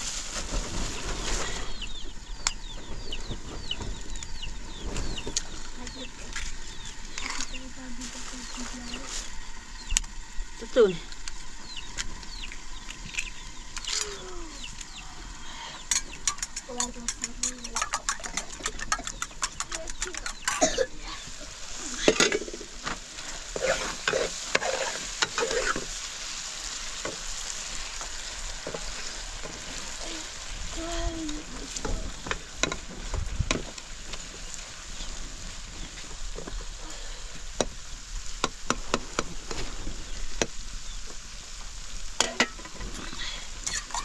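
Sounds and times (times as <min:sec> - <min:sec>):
food sizzling in a pan: 0:04.0 - 0:44.0
utensil stirring clicks and scrapes: 0:15.9 - 0:20.8, 0:23.2 - 0:25.9.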